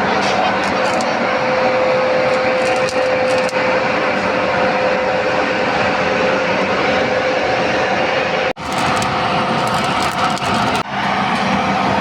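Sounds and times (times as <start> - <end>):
metalworking equipment running: 0.5 - 4.5, 8.6 - 11.1.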